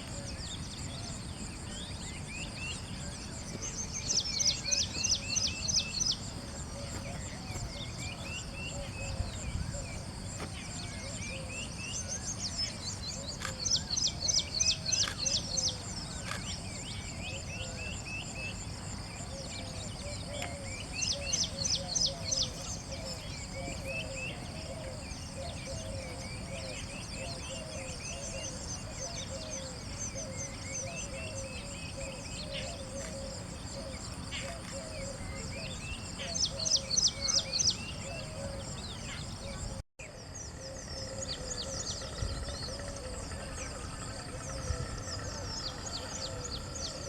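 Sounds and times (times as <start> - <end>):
birds calling and chirping: 0.0 - 39.8
high insect drone: 0.0 - 47.0.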